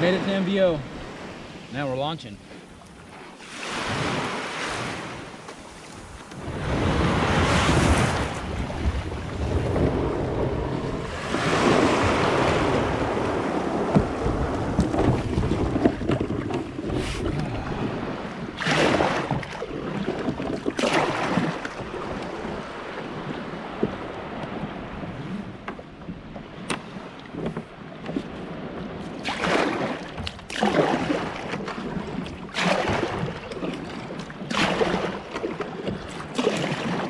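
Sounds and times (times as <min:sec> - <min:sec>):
ocean surf washing: 0:00.0 - 0:37.0
wind buffeting microphone: 0:03.8 - 0:30.3.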